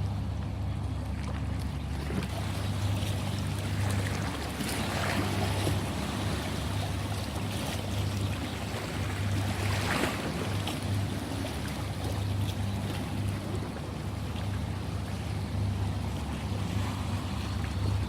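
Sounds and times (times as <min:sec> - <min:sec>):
ocean waves washing: 0:00.0 - 0:18.0
steady low hum: 0:00.0 - 0:18.0.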